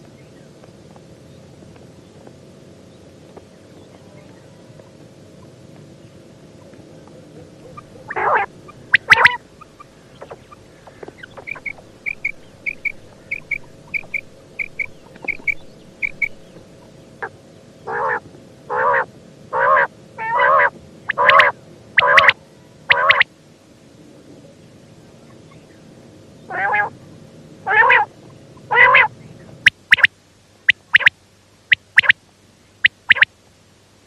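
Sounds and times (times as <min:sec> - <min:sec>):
quail calling: 0:06.6 - 0:23.2, 0:26.5 - 0:27.0, 0:27.7 - 0:30.1, 0:30.7 - 0:31.1, 0:31.7 - 0:32.2, 0:32.8 - 0:33.3.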